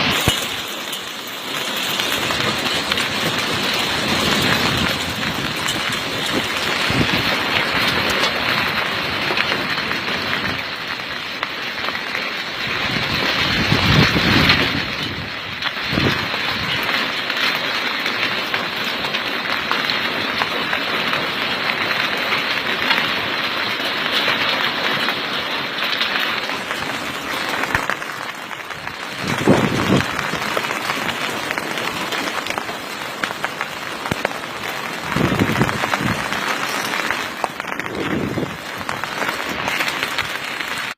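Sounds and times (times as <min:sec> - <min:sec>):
hailstones pelting down: 0:00.0 - 0:40.9.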